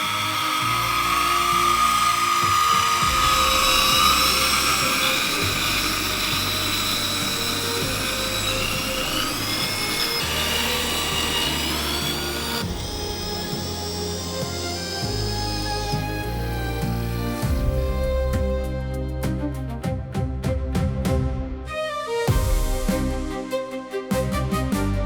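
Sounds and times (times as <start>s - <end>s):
small electric motors whining: 0.0s - 19.2s
background music with bass: 0.0s - 25.0s.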